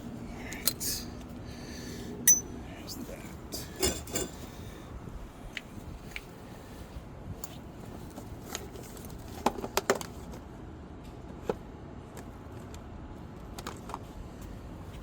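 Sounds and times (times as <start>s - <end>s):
metal hand tools clinking: 2.3s - 2.5s, 3.6s - 4.4s.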